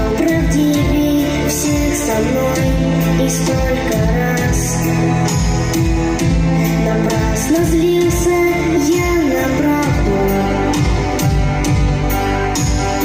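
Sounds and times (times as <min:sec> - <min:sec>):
boy singing: 0:00.0 - 0:05.0, 0:06.6 - 0:10.9
band with drums and bass: 0:00.0 - 0:13.0.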